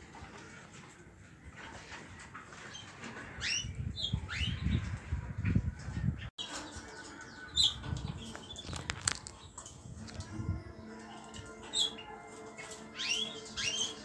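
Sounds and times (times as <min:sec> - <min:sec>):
small pet birds chirping: 0:02.6 - 0:09.7, 0:10.6 - 0:14.0.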